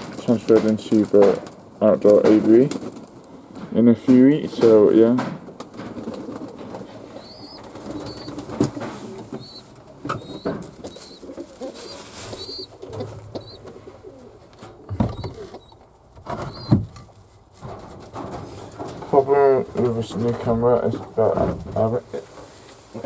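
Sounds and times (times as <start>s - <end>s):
doves cooing: 5.6s - 16.8s.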